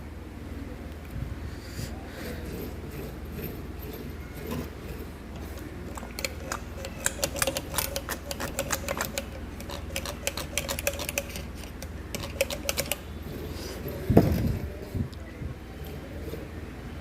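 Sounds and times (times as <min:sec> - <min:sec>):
metallic clicking of hand tools: 0:02.5 - 0:13.0.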